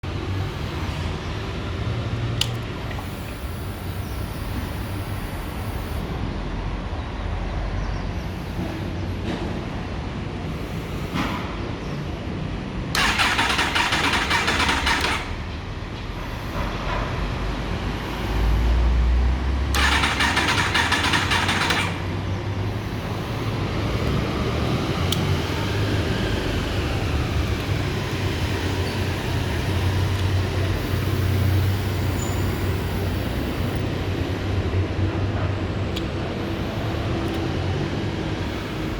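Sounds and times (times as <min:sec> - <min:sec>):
motorcycle starter cranking: 0:02.4 - 0:04.8, 0:12.9 - 0:15.6, 0:19.7 - 0:24.2.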